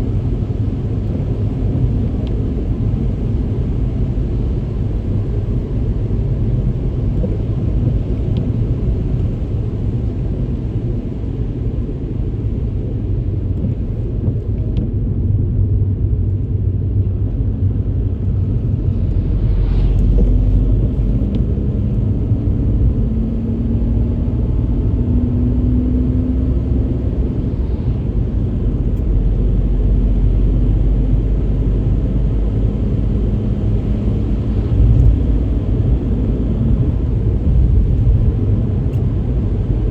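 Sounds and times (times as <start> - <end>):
tyres and engine rumble: 0.0 - 39.9
faint engine note rising: 18.1 - 22.3.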